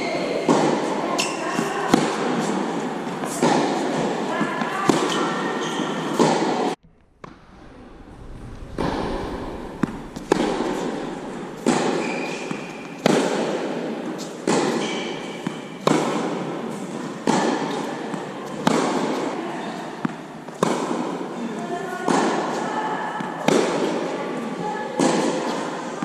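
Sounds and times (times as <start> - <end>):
tennis balls struck by rackets: 0.3 - 7.5, 8.9 - 21.4, 22.0 - 26.0
shoe squeaks on court: 11.9 - 12.9.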